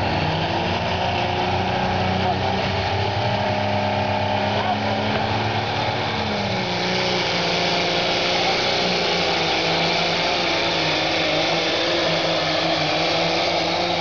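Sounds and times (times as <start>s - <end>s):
tractor engine at high revs: 0.0s - 14.0s.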